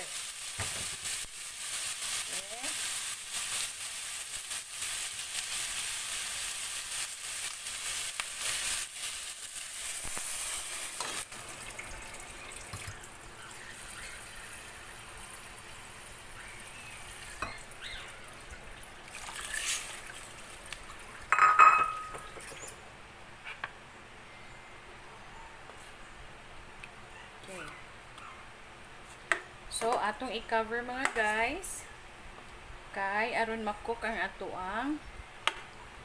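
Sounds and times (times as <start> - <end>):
food sizzling in hot oil: 0.0 - 18.0
pot simmering: 0.0 - 22.7.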